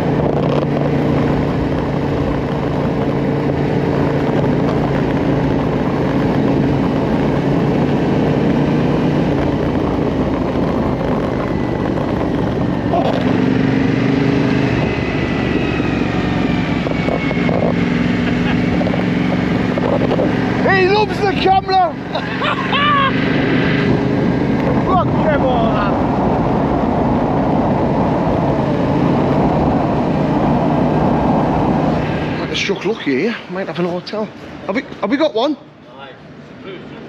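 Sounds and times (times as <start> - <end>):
motorcycle engine running: 0.0 - 22.6
wind rush: 0.0 - 34.7.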